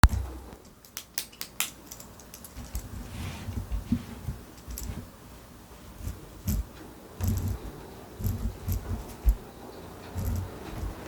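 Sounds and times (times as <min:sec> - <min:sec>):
light knocks of handling: 0:06.0 - 0:09.5.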